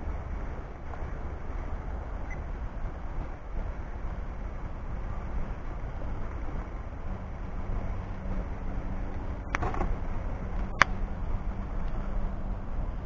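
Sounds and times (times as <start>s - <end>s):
wood fire rumbling: 0.0s - 13.0s.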